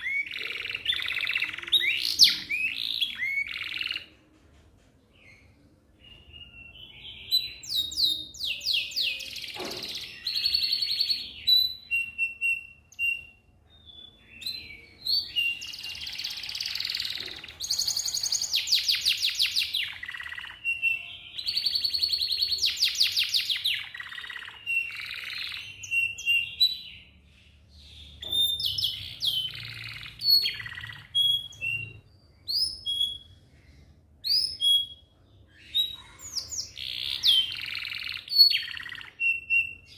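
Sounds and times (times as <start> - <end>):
canary singing trills: 0.0 - 4.2, 5.2 - 39.9.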